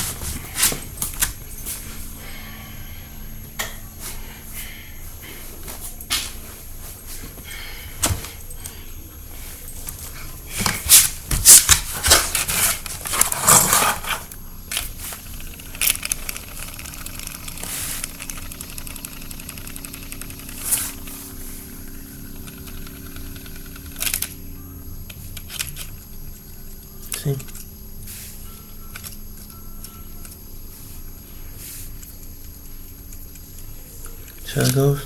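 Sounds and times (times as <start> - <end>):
faint steady hum: 0.0 - 35.0
fidget spinners clicking and rattling: 12.3 - 24.4.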